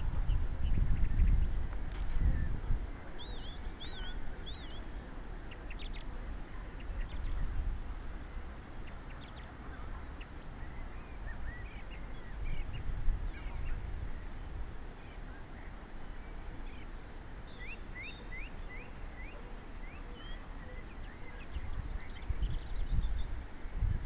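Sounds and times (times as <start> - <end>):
steady low rumble: 0.0 - 18.0
birds chirping: 2.2 - 7.6, 8.2 - 24.0
birds calling: 8.2 - 24.0.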